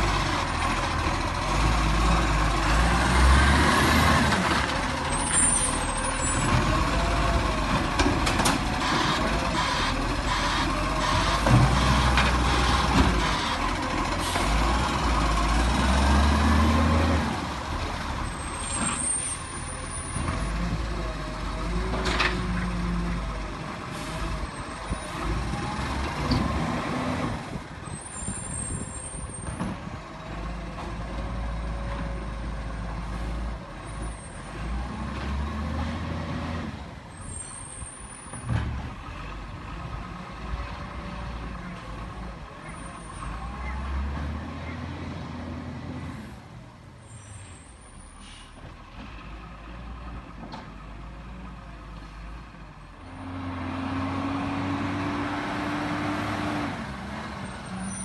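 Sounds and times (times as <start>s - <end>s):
air brake hisses: 47.1s - 48.6s.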